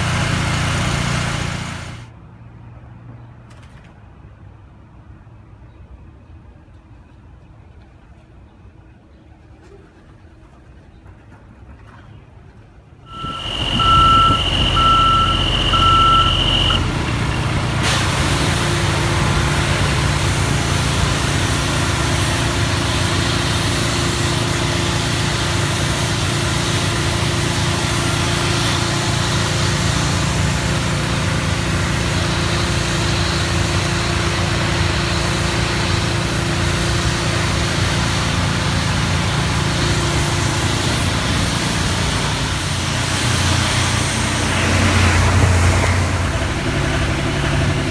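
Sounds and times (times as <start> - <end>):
loud engine drone: 0.0 - 2.1, 13.1 - 47.9
reversing alarm beeps: 13.1 - 17.6.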